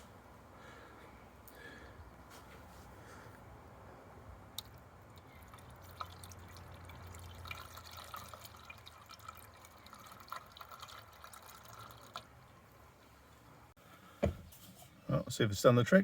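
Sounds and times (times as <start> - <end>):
water dripping and trickling: 4.6 - 12.8.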